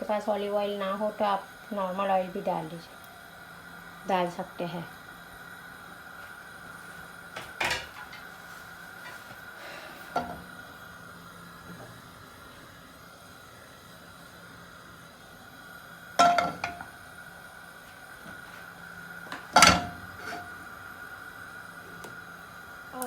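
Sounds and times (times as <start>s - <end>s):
faint steady hum: 0.0s - 23.0s
frying pan and utensils clattering: 7.4s - 8.3s, 16.2s - 16.9s, 19.5s - 20.5s.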